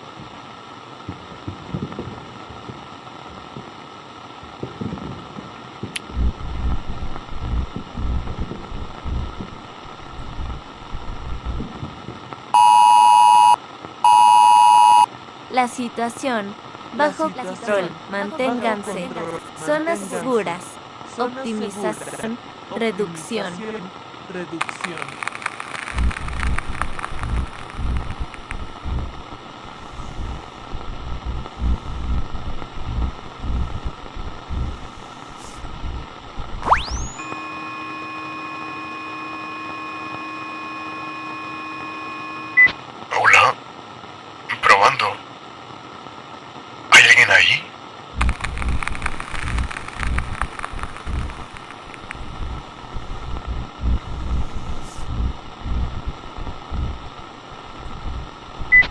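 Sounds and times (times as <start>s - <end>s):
sharp crackles: 12.6s - 15.1s, 24.6s - 29.7s, 48.2s - 53.4s
steady electronic tone: 12.6s - 15.1s
walkie-talkie static: 12.6s - 15.1s, 24.6s - 28.9s, 48.2s - 52.6s.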